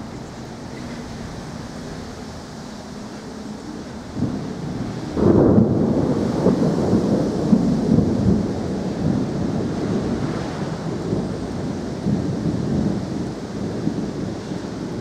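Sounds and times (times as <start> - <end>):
thunder rumbling: 3.1 - 15.0.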